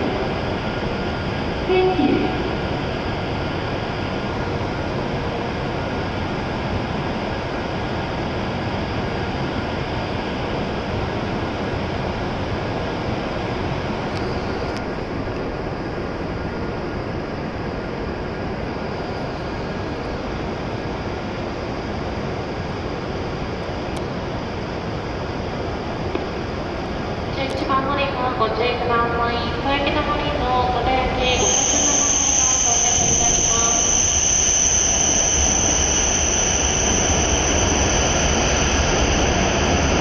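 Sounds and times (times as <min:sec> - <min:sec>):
train blowers whirring hum: 0:00.0 - 0:40.0.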